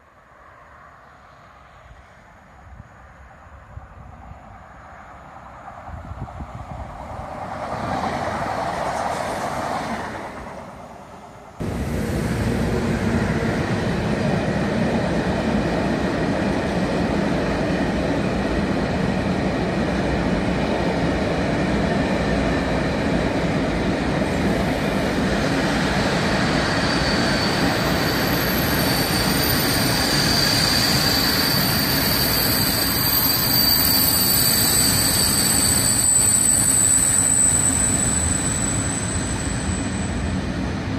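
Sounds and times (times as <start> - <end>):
train passing: 0.0 - 40.9
freight train rumbling past: 0.4 - 40.9
high-pitched wheel squeal: 26.0 - 40.6.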